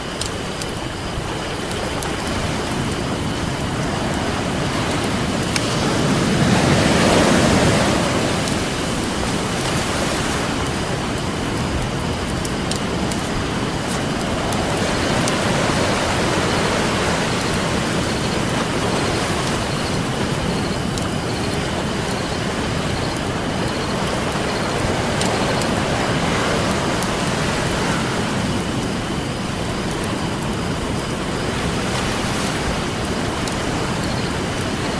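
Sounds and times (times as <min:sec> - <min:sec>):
campfire pops and crackles: 0:00.0 - 0:21.6, 0:33.4 - 0:34.7
ocean surf rushing: 0:00.0 - 0:34.9.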